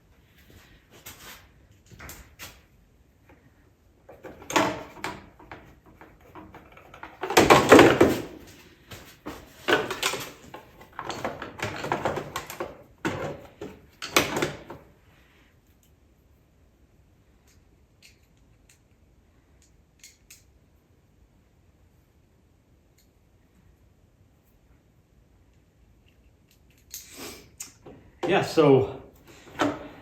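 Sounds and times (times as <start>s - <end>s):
parts knocking and rattling: 4.0s - 15.0s, 29.2s - 30.0s.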